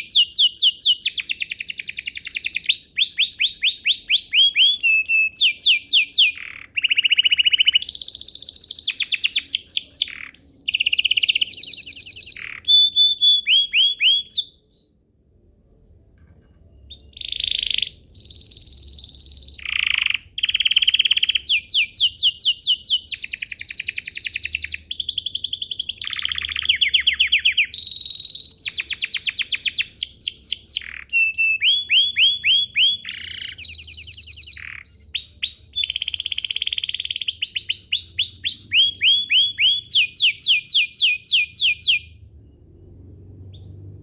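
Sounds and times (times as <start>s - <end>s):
canary singing trills: 0.0s - 15.0s, 16.7s - 44.0s.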